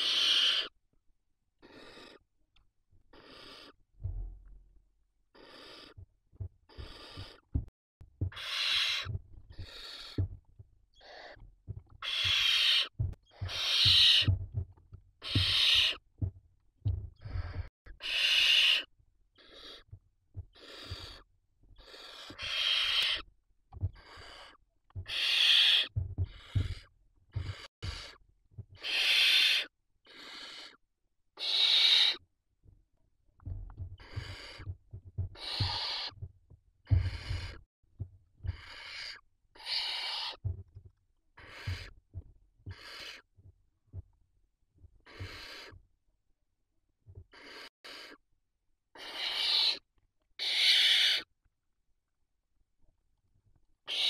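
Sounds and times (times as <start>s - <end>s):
owl chicks hissing begging calls: 0.0s - 0.7s, 1.6s - 2.2s, 3.1s - 3.8s, 5.4s - 6.0s, 6.7s - 7.4s, 8.3s - 10.2s, 11.0s - 11.4s, 12.0s - 14.3s, 15.2s - 16.0s, 17.4s - 19.9s, 20.5s - 23.2s, 23.9s - 28.2s, 28.8s - 30.8s, 31.4s - 32.2s, 34.0s - 34.6s, 35.4s - 36.2s, 37.0s - 37.6s, 38.5s - 40.4s, 41.4s - 41.9s, 42.7s - 43.2s, 45.1s - 45.8s, 47.3s - 48.2s, 49.0s - 49.8s, 50.4s - 51.3s.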